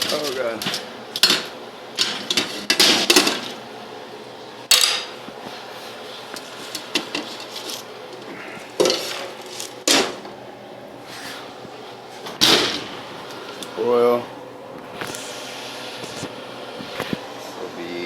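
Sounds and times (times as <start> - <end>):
pans and utensils clattering: 0.0 - 3.6, 4.7 - 5.2, 6.4 - 10.3.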